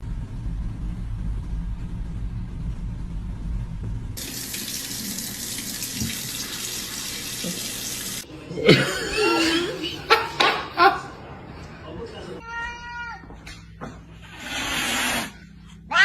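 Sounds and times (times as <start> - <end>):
running tap water: 4.2 - 8.3.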